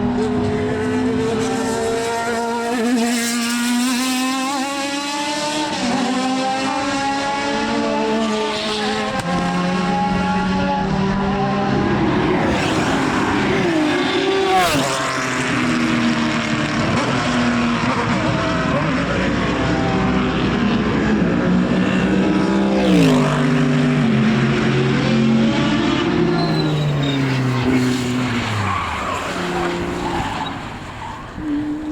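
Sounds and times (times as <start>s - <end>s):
racing car engines: 0.0s - 31.9s
car downshifting: 11.8s - 15.8s, 26.3s - 31.9s.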